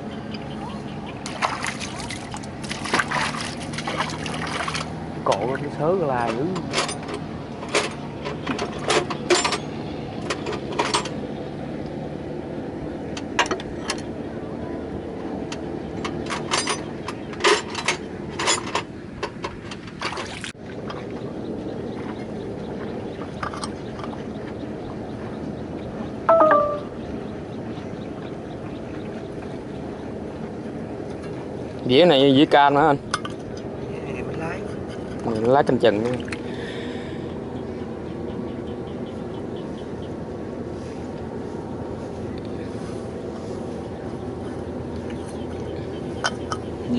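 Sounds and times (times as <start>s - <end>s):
engine running: 0.0s - 46.9s
short loud beep: 26.3s - 27.0s.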